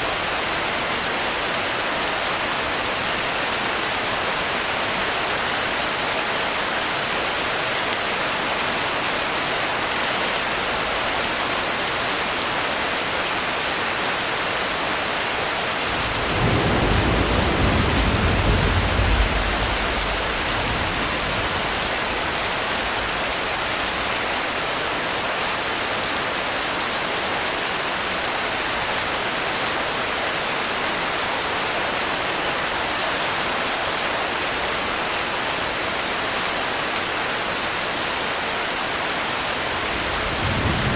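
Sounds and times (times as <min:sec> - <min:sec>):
steady rain falling: 0:00.0 - 0:40.9
low thunder roll: 0:15.9 - 0:23.7, 0:39.8 - 0:40.9.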